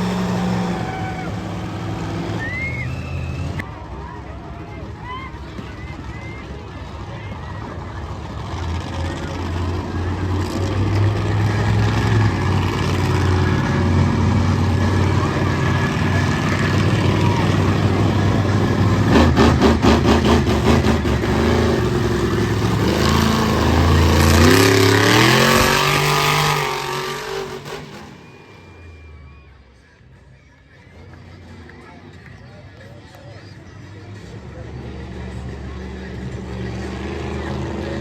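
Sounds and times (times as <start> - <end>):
monster truck engines revving: 0.0 - 38.0.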